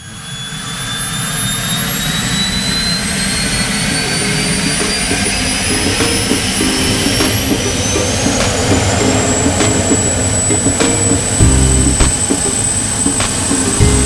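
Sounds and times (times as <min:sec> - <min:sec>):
turbine engine whine: 0:00.0 - 0:14.0
loud low rumble: 0:11.4 - 0:12.2.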